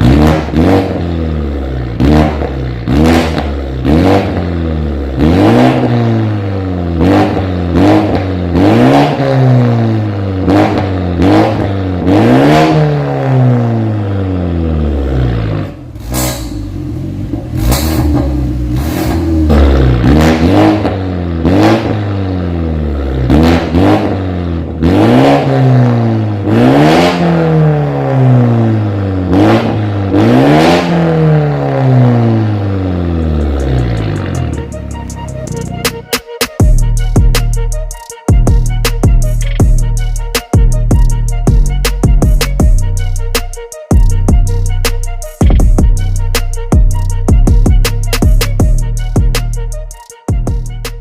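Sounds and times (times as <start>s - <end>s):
car engine revving: 0.0s - 50.0s
exhaust cracks: 14.6s - 26.7s, 29.3s - 50.0s.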